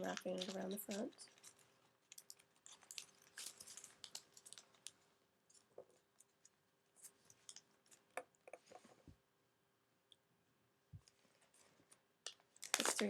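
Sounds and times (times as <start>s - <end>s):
paper rustling and creasing: 0.0s - 5.0s.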